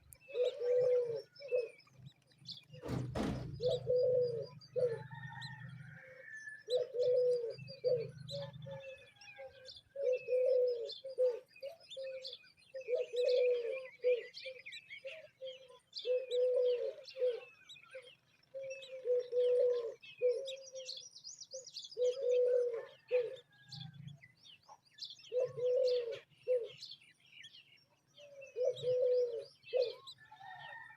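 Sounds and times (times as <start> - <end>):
dove cooing: 0.0 - 1.9, 3.6 - 21.0, 22.0 - 23.7, 25.3 - 26.8, 28.2 - 30.9.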